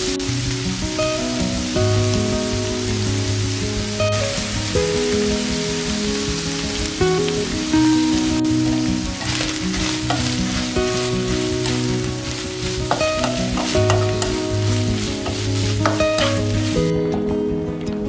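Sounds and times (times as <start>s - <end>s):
food sizzling in oil: 0.0s - 17.6s
soft background music: 0.0s - 18.0s
spatula scraping pan: 9.2s - 16.8s.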